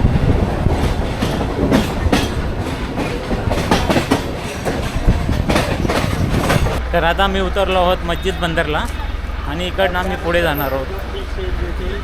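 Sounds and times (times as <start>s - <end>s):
knocks from train wheels: 0.0s - 6.8s
train rumbling: 0.0s - 12.0s.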